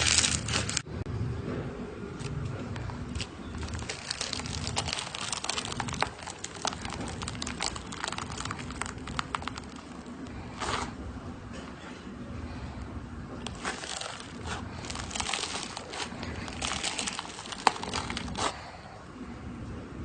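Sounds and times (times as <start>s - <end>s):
rustling: 0.0s - 0.8s, 2.2s - 11.0s, 13.4s - 18.6s
slime clicking and popping: 4.2s - 9.9s.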